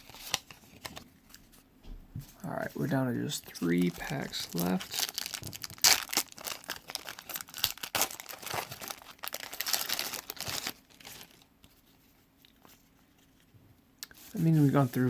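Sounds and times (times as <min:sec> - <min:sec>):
wrapper tearing and crinkling: 0:00.0 - 0:01.0, 0:03.5 - 0:11.5.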